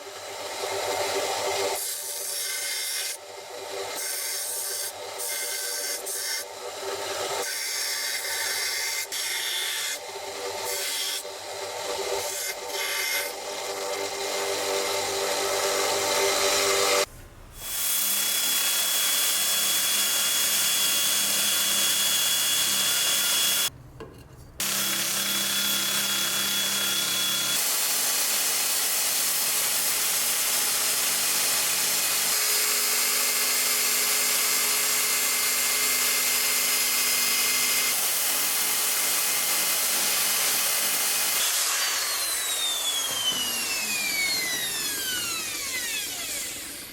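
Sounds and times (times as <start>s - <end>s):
electric power tool running: 41.3s - 46.9s.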